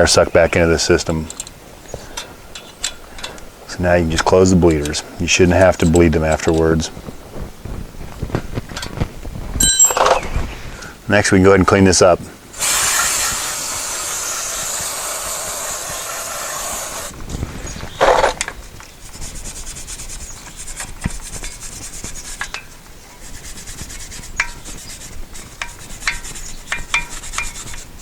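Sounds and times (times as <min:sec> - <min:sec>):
spray hissing: 0:12.6 - 0:17.1
scrubbing on metal parts: 0:18.0 - 0:28.0.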